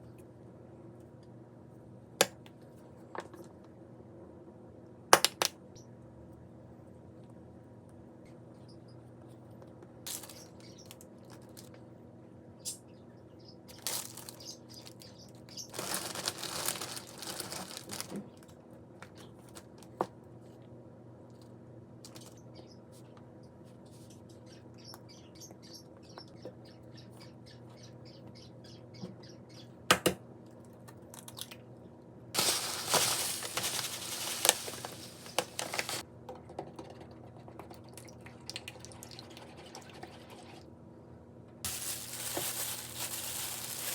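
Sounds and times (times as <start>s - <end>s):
rustling or scraping: 32.4s - 36.0s, 41.7s - 43.9s.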